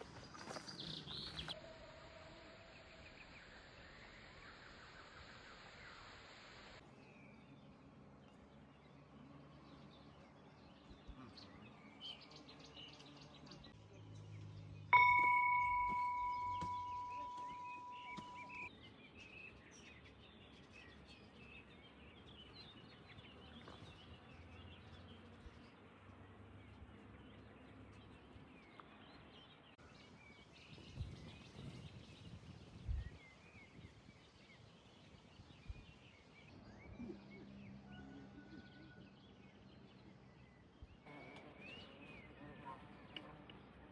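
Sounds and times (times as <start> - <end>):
birds chirping: 8.3 - 43.9
bell-like strike ringing: 15.0 - 18.7.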